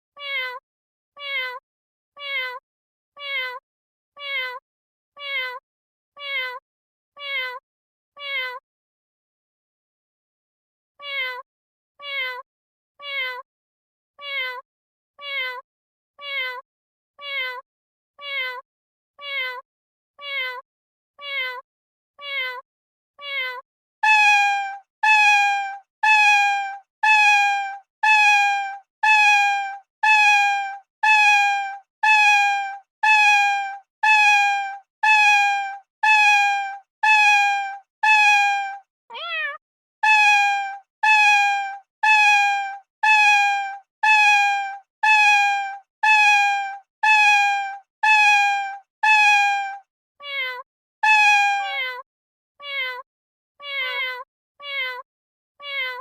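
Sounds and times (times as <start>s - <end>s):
cat meowing: 0.2s - 0.6s, 1.2s - 1.6s, 2.2s - 2.6s, 3.2s - 3.6s, 4.2s - 4.6s, 5.2s - 5.6s, 6.2s - 6.6s, 7.2s - 7.6s, 8.2s - 8.6s, 11.0s - 11.4s, 12.0s - 12.4s, 13.0s - 13.4s, 14.2s - 14.6s, 15.2s - 15.6s, 16.2s - 16.6s, 17.2s - 17.6s, 18.2s - 18.6s, 19.2s - 19.6s, 20.2s - 20.6s, 21.2s - 21.6s, 22.2s - 22.6s, 23.2s - 42.4s, 43.0s - 43.4s, 45.0s - 45.4s, 49.1s - 49.5s, 50.2s - 52.0s, 52.6s - 53.0s, 53.6s - 55.0s, 55.6s - 56.0s.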